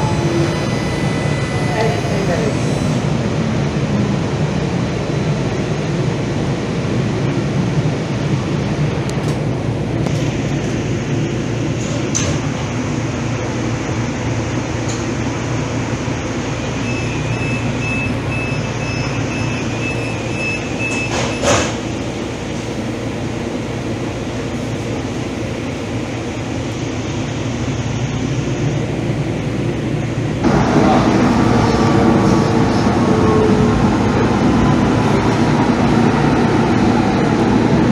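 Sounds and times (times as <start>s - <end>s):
thin high tone: 0.0s - 3.2s, 16.8s - 21.5s
light-rail car rumbling: 0.0s - 37.9s.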